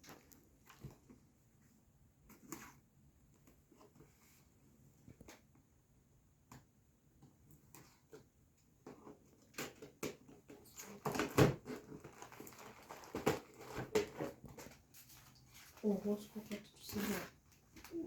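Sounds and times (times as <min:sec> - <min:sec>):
packaging rustling and crinkling: 0:09.6 - 0:18.0.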